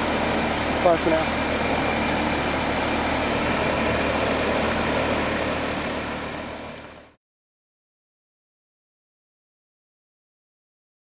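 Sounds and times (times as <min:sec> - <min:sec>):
heat pump humming: 0:00.0 - 0:07.2.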